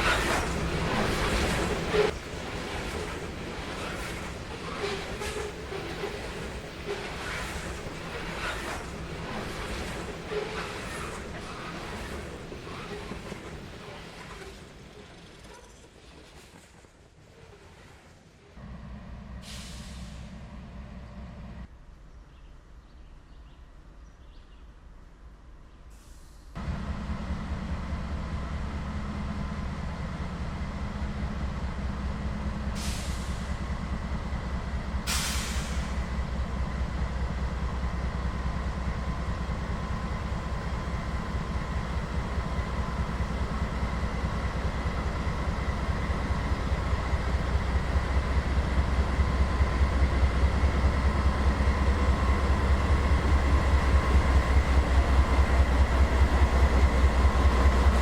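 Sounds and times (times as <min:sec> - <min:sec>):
diesel locomotive engine rumble: 0:00.0 - 0:58.0.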